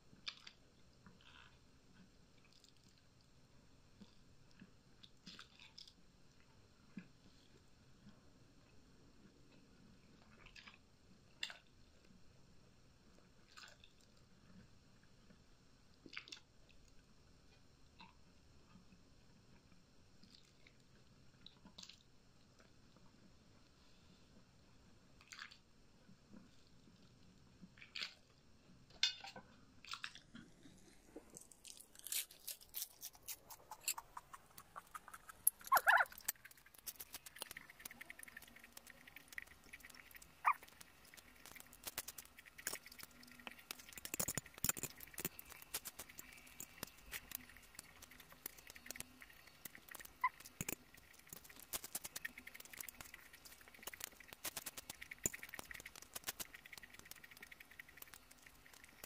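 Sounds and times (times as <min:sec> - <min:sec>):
chewing noodles and lettuce: 0:29.8 - 0:59.0.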